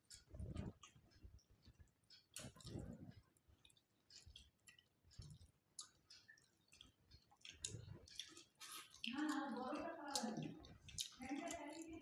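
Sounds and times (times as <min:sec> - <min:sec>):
quiet chewing: 0:00.0 - 0:12.0
lip smacks: 0:03.6 - 0:09.4, 0:10.1 - 0:12.0.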